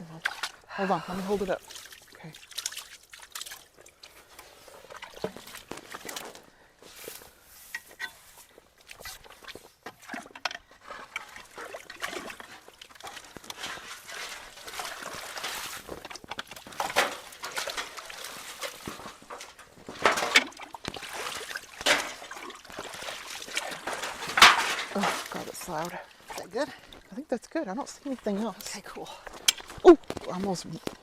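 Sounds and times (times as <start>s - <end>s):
sharp water splashes: 0.0s - 4.2s, 20.0s - 27.2s
creek water rushing into culvert: 8.8s - 31.0s.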